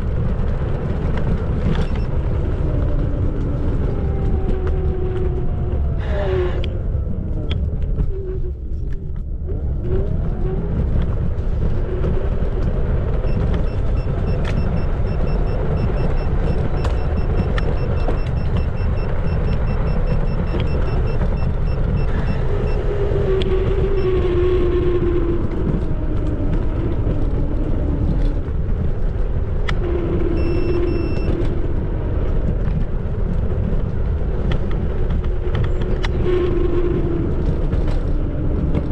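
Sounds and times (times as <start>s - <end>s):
wind and tyres rumbling on road: 0.0s - 38.9s.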